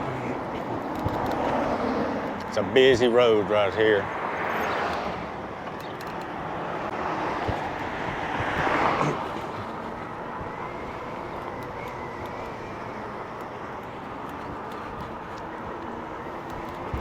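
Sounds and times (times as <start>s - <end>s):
road traffic: 0.0s - 17.0s
vehicle passing: 0.0s - 17.0s.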